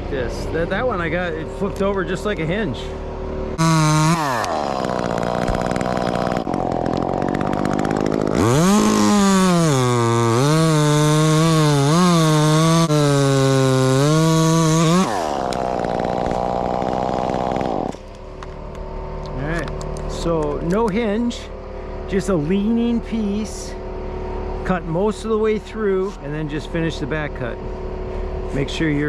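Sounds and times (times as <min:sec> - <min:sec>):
chainsaw cutting wood: 0:03.1 - 0:24.6.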